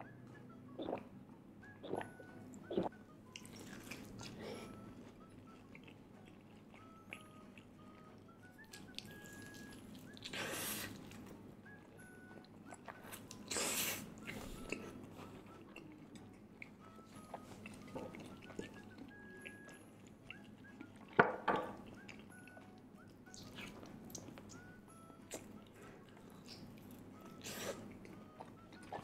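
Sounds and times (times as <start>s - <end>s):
crispy chicken being chewed: 2.6s - 29.0s.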